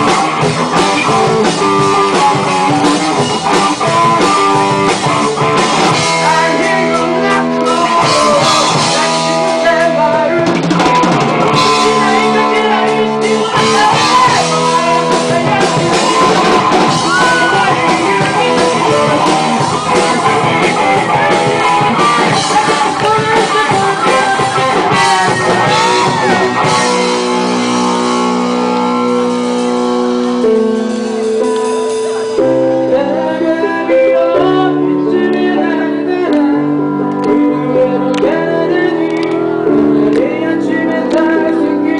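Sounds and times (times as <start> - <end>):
drums: 0.0 - 41.9
guitar chords: 0.0 - 41.9
person singing: 0.0 - 41.9.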